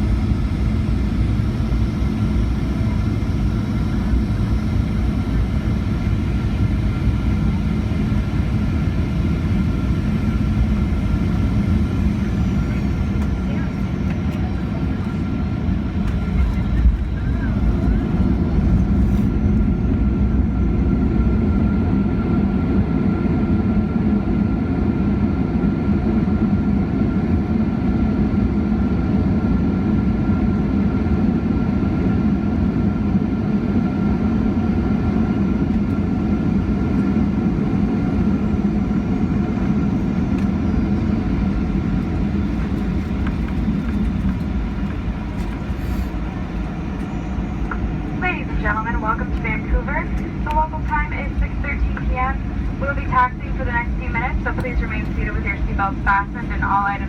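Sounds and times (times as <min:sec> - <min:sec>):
aircraft engines and wheels rumbling: 0:00.0 - 0:57.0
faint steady whine: 0:34.4 - 0:57.0.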